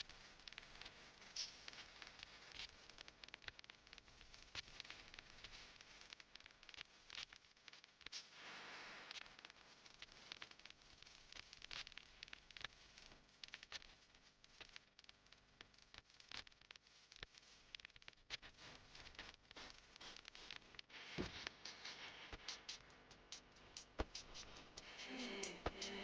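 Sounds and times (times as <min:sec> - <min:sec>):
faint clicks and taps: 0:10.0 - 0:26.0
soft hiss: 0:18.5 - 0:26.0.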